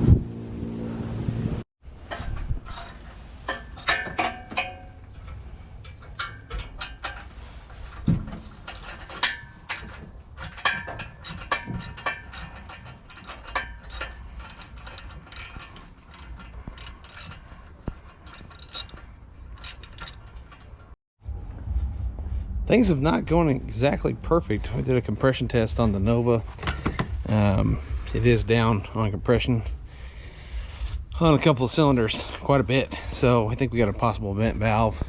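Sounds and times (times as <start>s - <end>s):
metal tools clinking: 2.2s - 21.0s
ratchet wrench clicking: 2.7s - 3.0s, 7.8s - 17.5s, 18.2s - 19.0s, 19.6s - 20.6s.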